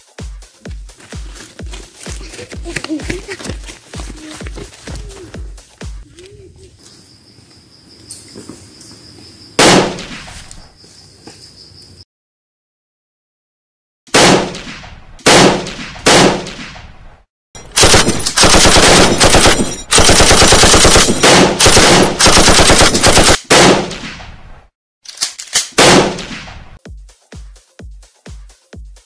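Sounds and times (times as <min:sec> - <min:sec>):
single gunshots with echo: 0:09.6 - 0:10.3, 0:14.1 - 0:16.9, 0:22.9 - 0:24.4, 0:25.8 - 0:26.7
rapid automatic gunfire: 0:17.6 - 0:24.0.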